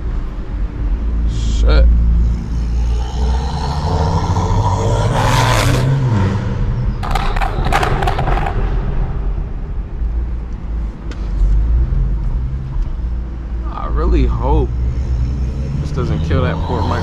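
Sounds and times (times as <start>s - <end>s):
low exhaust drone: 0.0s - 17.0s
car engine accelerating hard: 1.0s - 9.6s, 13.8s - 17.0s
exhaust crackling rasp: 1.2s - 8.6s, 14.7s - 17.0s.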